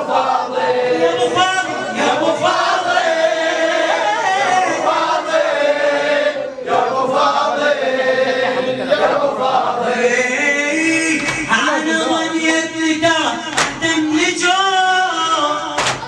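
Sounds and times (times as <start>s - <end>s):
men chanting in unison: 0.0s - 16.0s.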